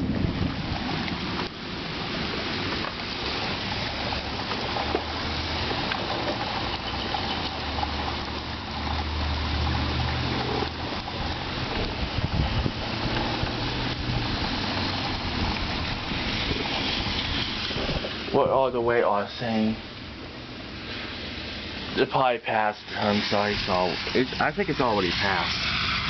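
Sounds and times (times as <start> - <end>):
rain hissing: 0.0 - 26.0
running water: 0.0 - 26.0.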